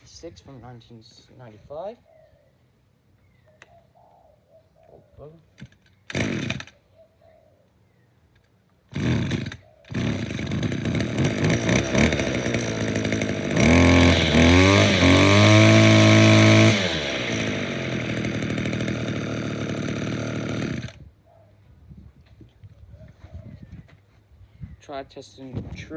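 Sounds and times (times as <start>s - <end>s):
string trimmer engine: 5.6s - 6.8s, 8.9s - 21.0s.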